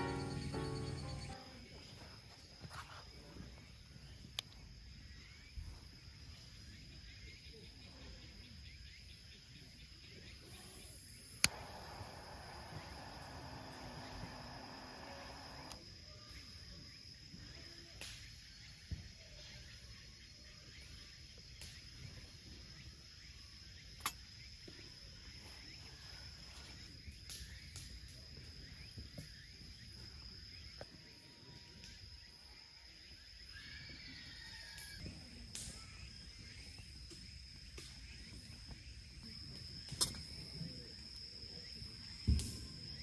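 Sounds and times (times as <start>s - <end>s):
insect high-pitched trill: 0.0s - 3.0s, 8.5s - 43.0s
faint outdoor background noise: 0.0s - 43.0s.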